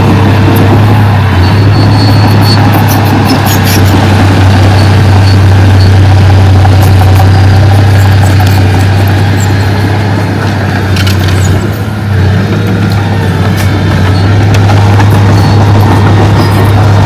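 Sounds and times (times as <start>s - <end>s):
heavy diesel engine humming: 0.0s - 17.0s.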